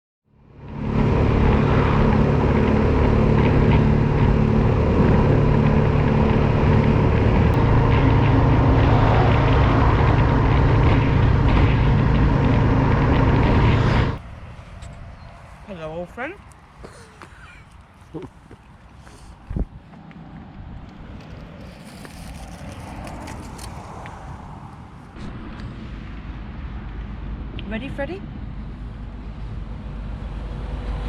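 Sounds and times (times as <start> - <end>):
motorcycle engine running: 0.4 - 14.2
wind rush: 0.6 - 15.7, 18.9 - 31.0.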